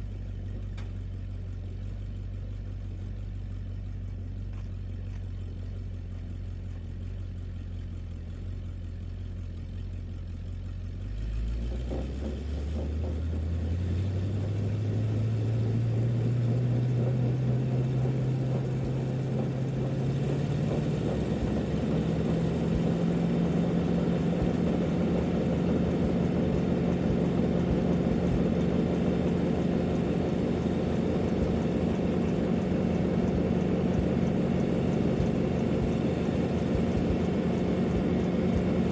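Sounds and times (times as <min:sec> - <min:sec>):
truck engine revving: 0:11.2 - 0:38.9.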